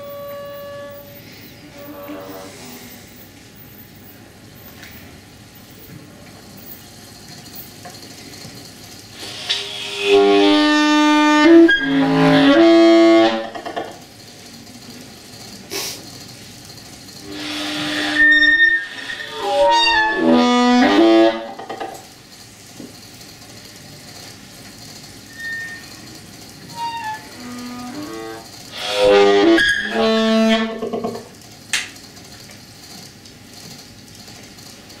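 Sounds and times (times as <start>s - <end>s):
synthesized wind instrument notes: 0.0s - 1.2s.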